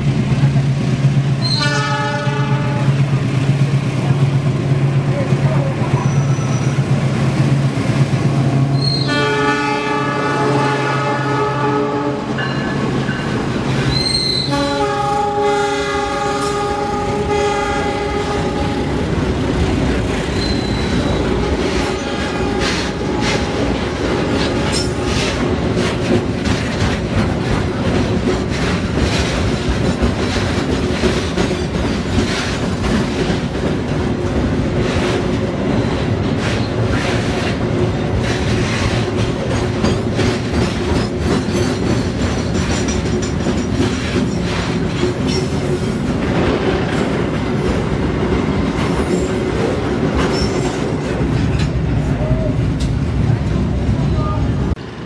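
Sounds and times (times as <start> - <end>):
train rumble: 0.0 - 55.0
locomotive horn chord: 1.4 - 3.0, 8.9 - 12.4, 14.4 - 19.0
wheels clattering over rail joints: 19.6 - 52.1.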